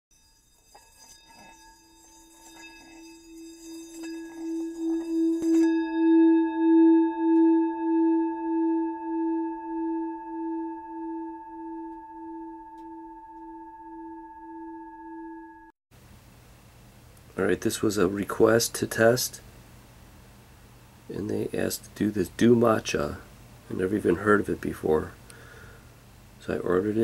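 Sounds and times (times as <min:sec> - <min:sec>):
pulsing bell-like ringing tone: 0:00.1 - 0:15.7.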